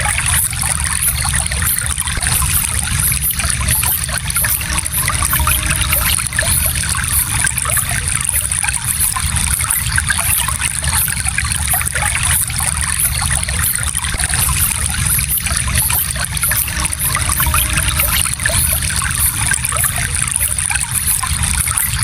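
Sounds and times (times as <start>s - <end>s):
stream flowing and trickling: 0.0s - 22.0s.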